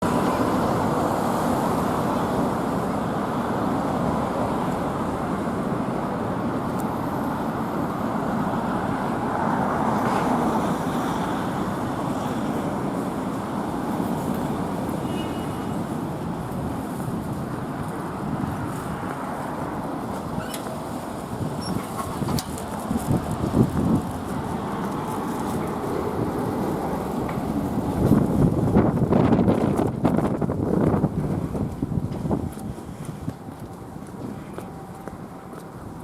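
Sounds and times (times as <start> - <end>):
city road traffic: 0.0 - 36.0.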